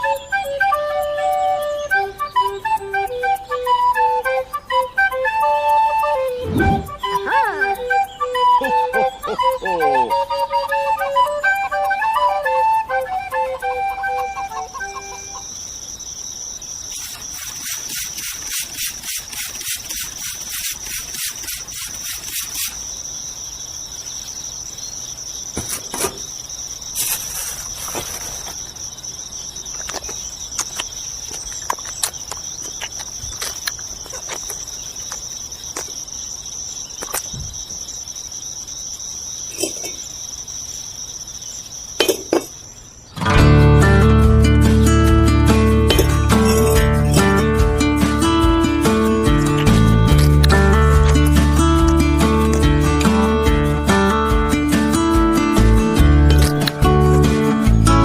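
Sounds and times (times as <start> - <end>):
fast run of ticks: 0.0 - 23.4
insects trilling: 0.0 - 58.0.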